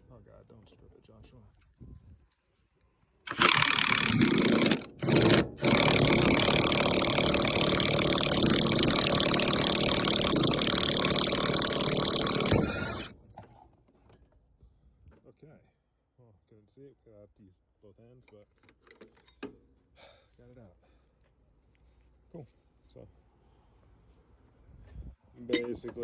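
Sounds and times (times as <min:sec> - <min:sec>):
power tool running on a bolt: 0:03.3 - 0:13.2.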